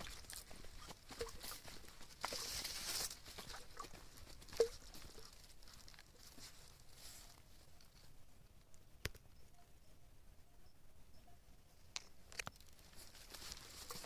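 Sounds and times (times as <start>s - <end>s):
leaves rustling underfoot: 0.0s - 8.2s, 12.3s - 14.0s.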